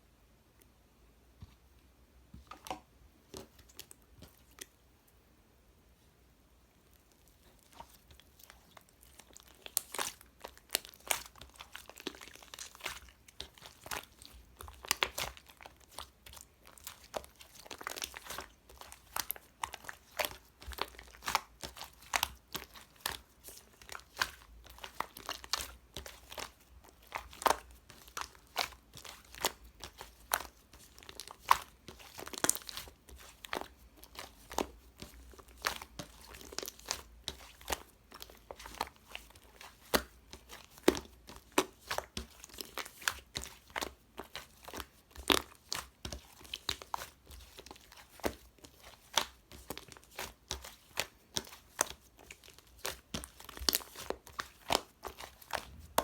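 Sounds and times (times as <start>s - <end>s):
slime crackling and popping: 6.9s - 56.0s.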